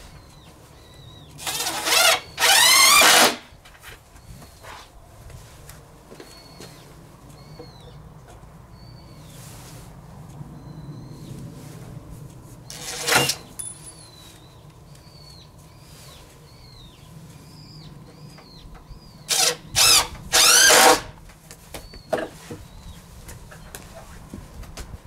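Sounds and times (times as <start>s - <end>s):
power drill whirring: 1.4s - 3.4s, 19.3s - 21.1s.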